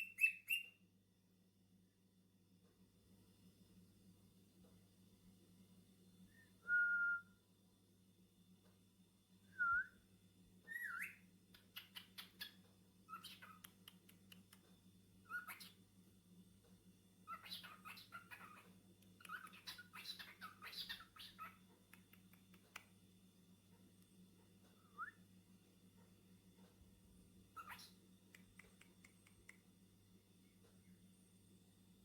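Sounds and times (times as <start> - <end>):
cockatiel chirping chatter: 0.0 - 0.7, 10.7 - 13.8, 15.3 - 15.8, 17.3 - 21.6, 27.6 - 28.0
cockatiel whistling: 0.0 - 0.7, 10.7 - 11.2.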